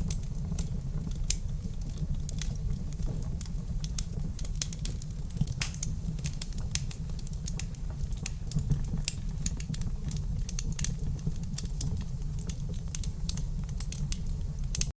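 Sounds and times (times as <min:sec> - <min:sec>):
wood fire crackling: 0:00.0 - 0:14.9.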